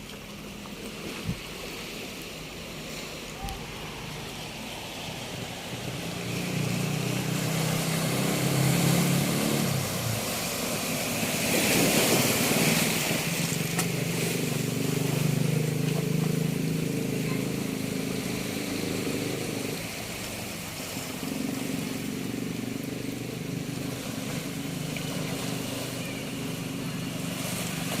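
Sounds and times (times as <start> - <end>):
wash of waves: 0.0 - 28.0
motor engine running: 2.9 - 28.0.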